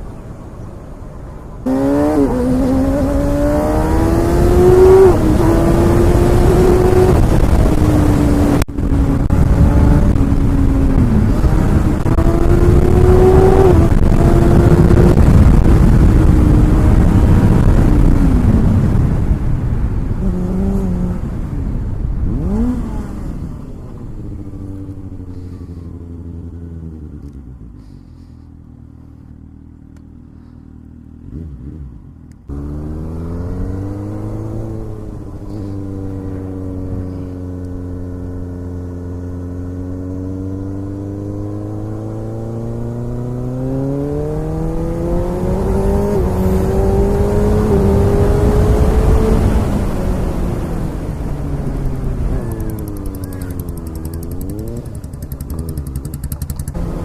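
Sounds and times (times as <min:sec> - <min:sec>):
motorcycle engine running: 0:23.8 - 0:32.8, 0:51.6 - 0:57.0.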